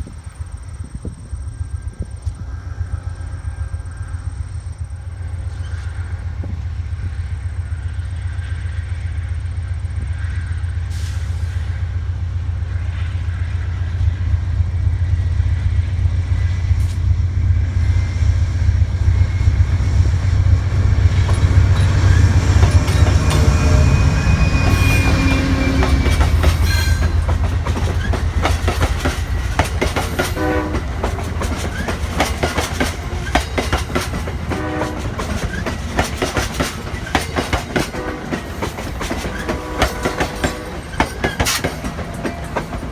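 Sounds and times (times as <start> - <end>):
diesel locomotive drone: 0.0 - 42.9
train wheels clicking over rail joints: 18.7 - 42.9.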